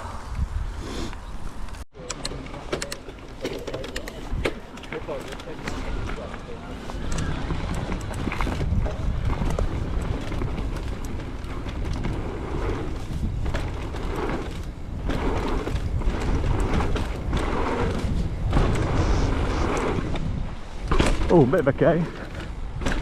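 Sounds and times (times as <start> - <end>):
wind rumbling on microphone: 0.0 - 1.8, 5.5 - 23.0
bike rattling and knocking: 2.4 - 23.0
bike tyre hiss on dirt: 17.4 - 20.2.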